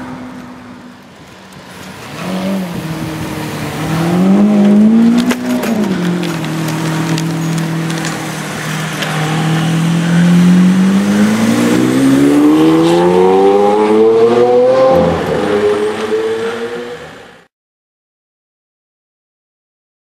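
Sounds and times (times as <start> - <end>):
car engine accelerating: 1.8 - 17.5.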